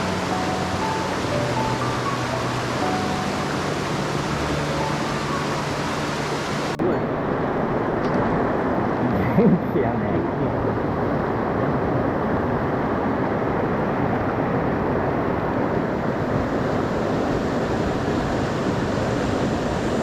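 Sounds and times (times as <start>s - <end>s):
stream rushing over rocks: 0.0s - 9.2s.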